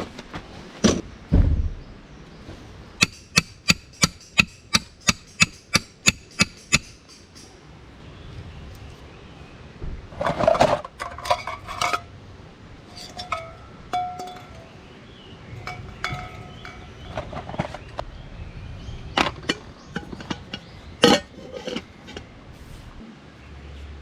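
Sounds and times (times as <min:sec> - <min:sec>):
hard objects clinking together: 0:12.9 - 0:14.8, 0:15.6 - 0:17.7.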